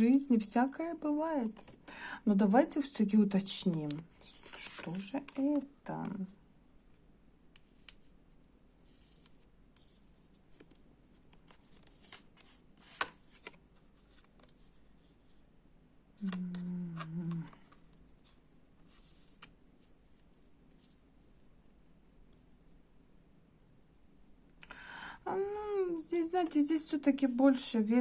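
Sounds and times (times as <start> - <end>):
cards being shuffled: 3.5 - 6.3, 8.9 - 15.4
person humming: 16.2 - 17.6.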